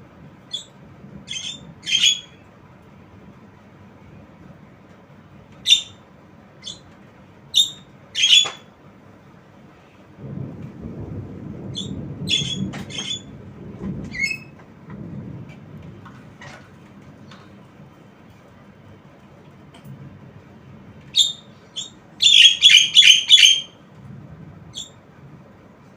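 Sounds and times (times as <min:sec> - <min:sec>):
low rumbling noise: 0:00.0 - 0:25.9
myna squawking calls: 0:01.3 - 0:02.4, 0:07.6 - 0:08.6, 0:21.2 - 0:23.7.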